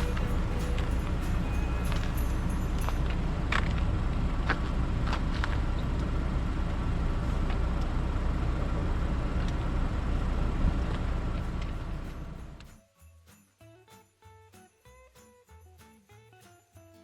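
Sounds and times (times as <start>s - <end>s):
car road noise rumble: 0.0s - 12.7s.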